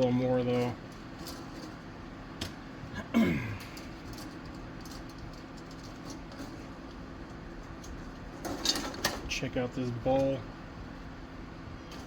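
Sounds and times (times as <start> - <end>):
steady low hum: 0.0 - 12.0
man grunting: 3.0 - 3.7.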